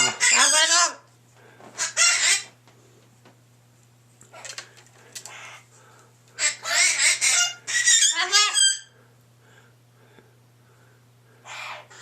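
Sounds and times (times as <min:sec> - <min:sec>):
pet bird squawking: 0:00.0 - 0:01.0, 0:01.8 - 0:02.5, 0:06.4 - 0:08.9.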